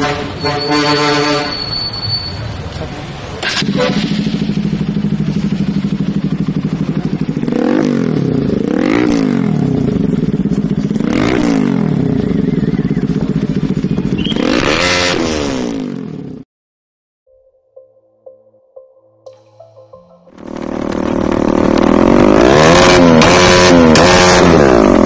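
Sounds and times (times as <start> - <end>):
motorcycle engine idling and revving: 2.1 - 16.5, 20.3 - 25.0.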